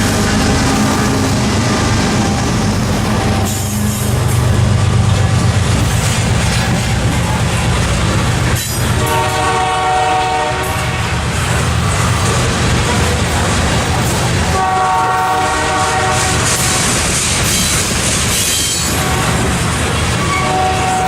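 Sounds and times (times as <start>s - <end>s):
diesel locomotive drone: 0.0s - 21.0s
train wheels on rails: 0.0s - 21.0s
multi-note train horn: 9.0s - 11.1s, 14.5s - 16.5s, 20.3s - 21.0s.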